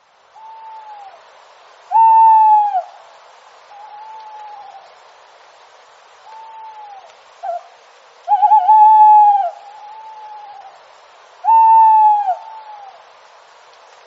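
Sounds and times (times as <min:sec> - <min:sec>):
owl hooting: 0:00.4 - 0:01.2, 0:01.9 - 0:02.9, 0:03.7 - 0:04.9, 0:06.2 - 0:07.7, 0:08.3 - 0:10.8, 0:11.4 - 0:13.0.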